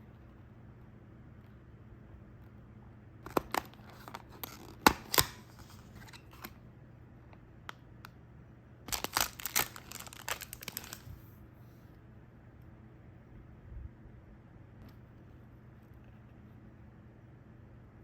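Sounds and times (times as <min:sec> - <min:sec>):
snack wrapper crinkling and tearing: 0:03.3 - 0:05.7, 0:08.9 - 0:11.1.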